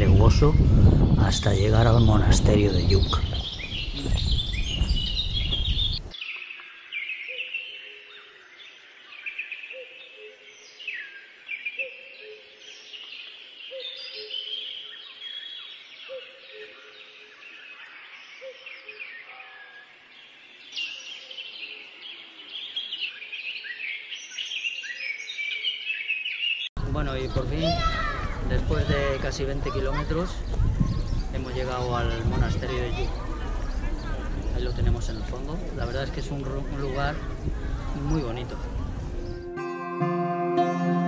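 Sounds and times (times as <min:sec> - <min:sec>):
birds singing and chirping: 0:00.0 - 0:39.5
two-note bird call: 0:39.2 - 0:41.0.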